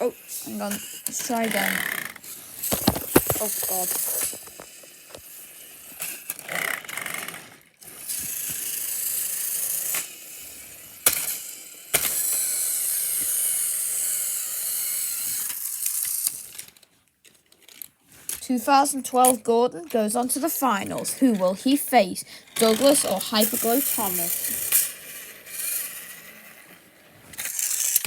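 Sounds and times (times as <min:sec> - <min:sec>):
toy train motors whirring: 0:00.0 - 0:28.0
rattling gear clatter: 0:02.6 - 0:05.3.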